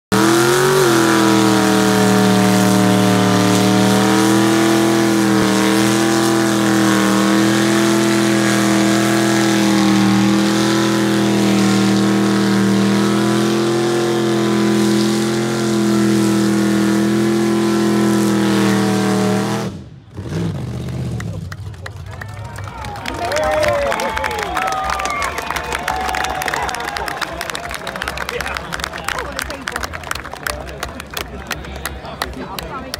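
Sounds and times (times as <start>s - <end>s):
car engine at high revs: 0.1s - 22.1s
tyres spinning on tarmac: 20.6s - 32.9s.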